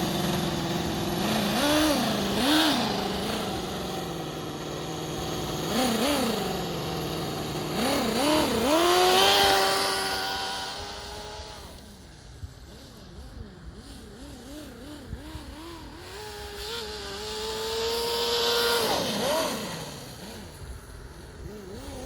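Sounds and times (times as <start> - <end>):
model engine idling and revving: 0.0 - 22.0.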